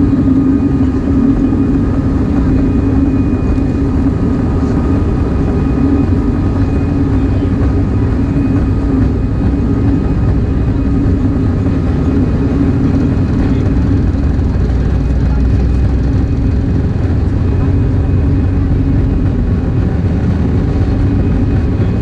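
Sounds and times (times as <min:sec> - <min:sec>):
faint high whine: 0:00.0 - 0:20.2
jet engines rumbling: 0:00.0 - 0:22.0.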